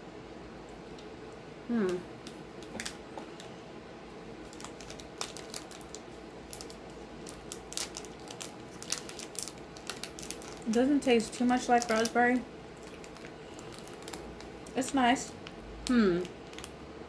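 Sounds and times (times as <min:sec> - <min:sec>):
brief vocal hum: 0:01.7 - 0:02.1
plastic wrapper crackling: 0:02.2 - 0:03.5, 0:04.4 - 0:16.8.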